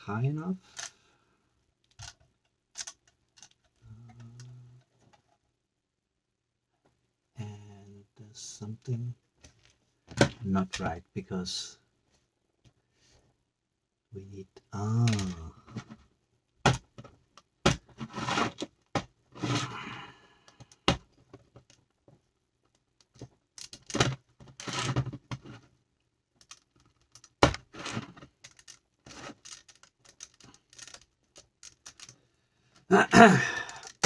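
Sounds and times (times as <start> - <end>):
plastic bricks clicking and snapping: 1.8 - 4.6, 15.0 - 15.5, 22.7 - 25.0, 26.4 - 32.2, 33.5 - 34.0
bricks scraping rustles: 17.8 - 18.7, 19.3 - 20.0, 27.5 - 31.0.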